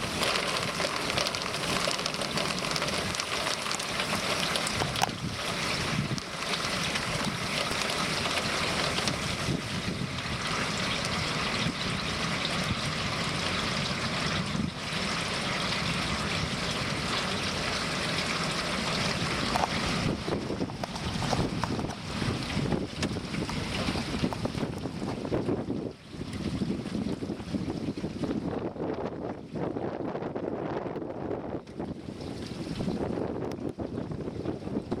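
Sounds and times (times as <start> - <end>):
rain: 0.0 - 25.8
storm wind on microphone: 0.0 - 35.0.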